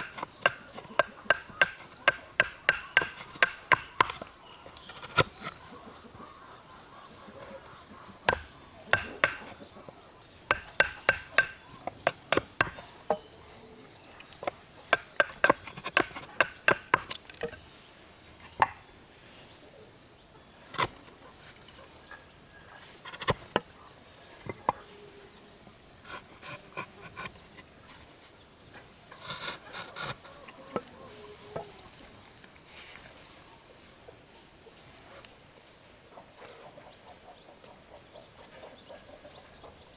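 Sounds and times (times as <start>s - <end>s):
hand tool knocking on wood: 0.0s - 4.3s, 8.3s - 9.6s, 10.5s - 12.8s, 14.4s - 17.6s
insects droning: 0.0s - 39.9s.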